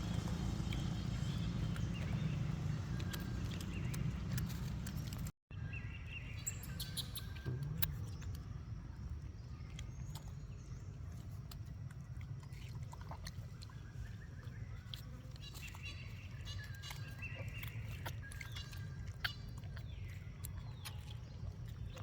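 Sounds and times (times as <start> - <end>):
low rumble: 0.0 - 5.3
clicks and rustles: 2.9 - 5.3.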